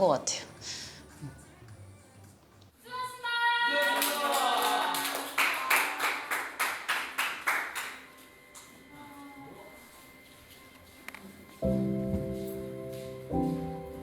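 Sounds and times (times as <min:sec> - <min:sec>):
sharp clap-like hits: 0:05.0 - 0:08.0.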